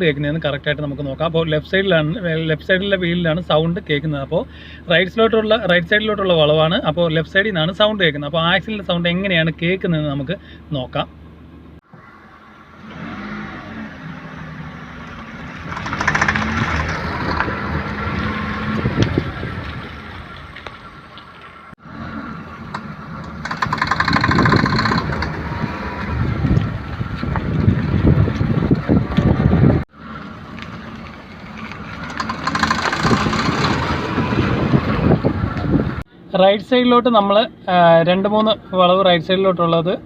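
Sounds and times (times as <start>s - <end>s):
car engine and road noise: 0.0s - 40.0s
rapid clicking from drive axle joint: 15.6s - 17.0s, 22.7s - 25.3s, 32.0s - 33.8s.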